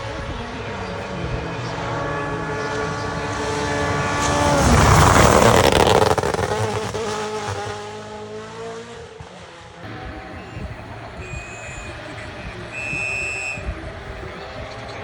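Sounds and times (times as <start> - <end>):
rally car engine revving: 0.0 - 15.0
tyre and gravel noise: 3.8 - 7.2.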